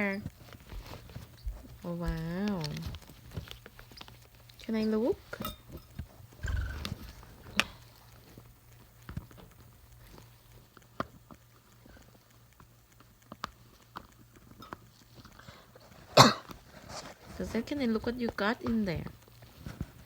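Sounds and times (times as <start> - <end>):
bird chewing and scraping: 0.0 - 20.0.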